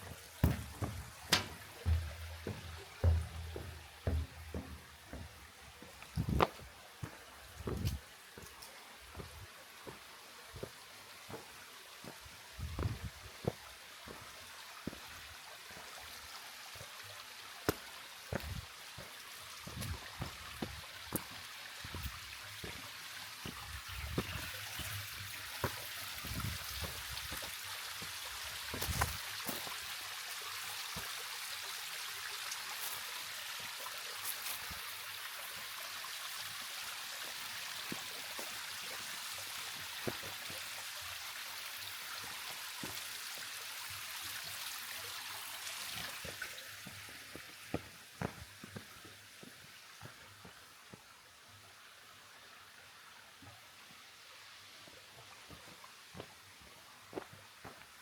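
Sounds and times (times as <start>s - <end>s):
low thumps and knocks: 0.0s - 5.5s, 6.2s - 6.6s, 12.6s - 13.1s
mountain water rushing: 0.0s - 50.8s.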